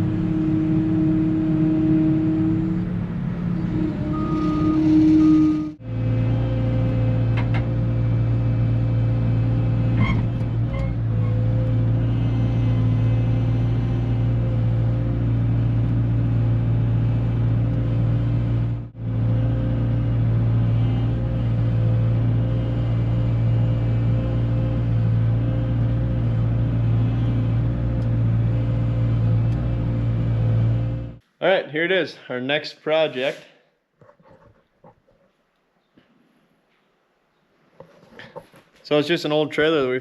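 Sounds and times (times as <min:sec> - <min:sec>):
vehicle engine humming: 0:00.0 - 0:31.2.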